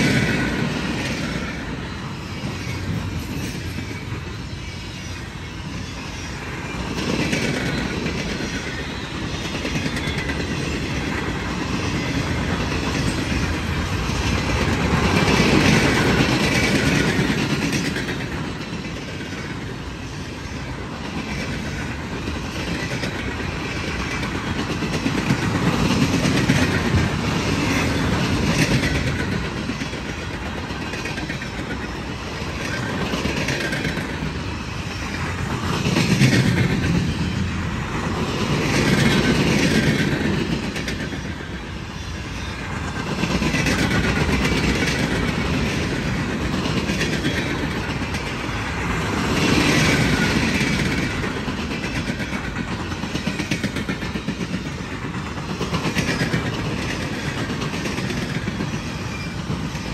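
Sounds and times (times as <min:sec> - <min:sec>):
steel wheels clacking over rail joints: 0:00.0 - 0:59.9.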